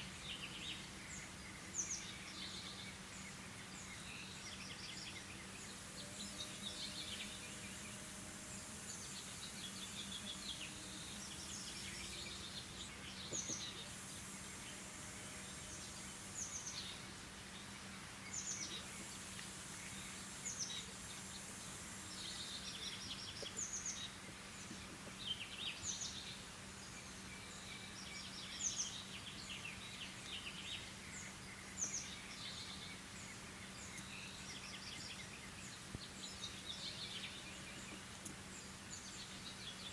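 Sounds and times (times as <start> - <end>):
songbirds singing and chirping: 0.0 - 39.9
steady low hum: 0.0 - 39.9.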